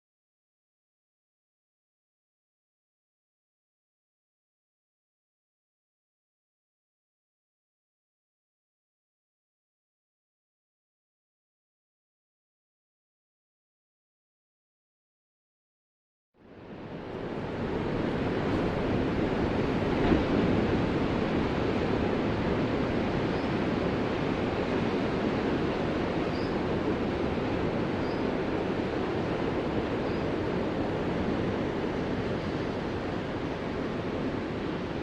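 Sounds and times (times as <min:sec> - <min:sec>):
ocean waves breaking: 0:16.5 - 0:35.0
wave splash: 0:17.0 - 0:35.0.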